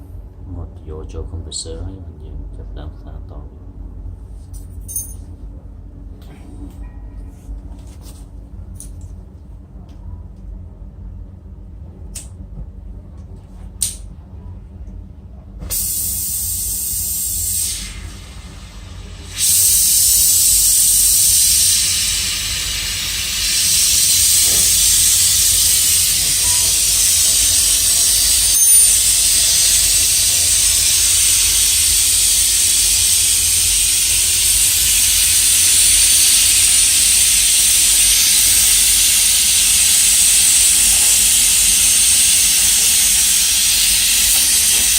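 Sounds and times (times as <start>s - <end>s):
torch igniter clicks: 12.1s - 12.4s, 13.8s - 14.1s
gas torch hissing: 15.6s - 44.9s.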